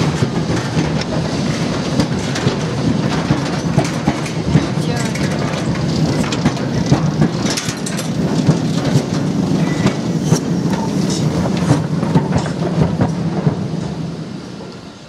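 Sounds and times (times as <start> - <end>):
wagons clicking and clanking: 0.0 - 14.0
train wheels rumbling on rails: 0.0 - 15.0.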